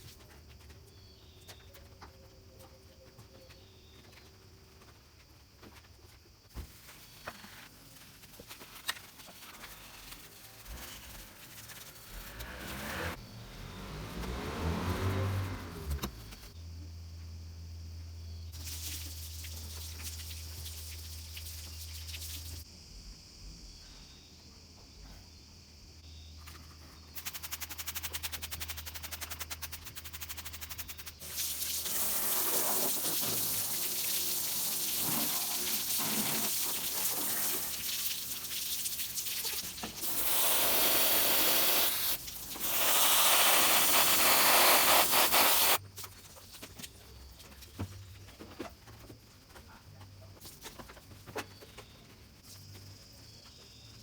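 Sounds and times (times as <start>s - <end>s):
spray hissing: 10.7s - 13.2s, 31.2s - 45.8s.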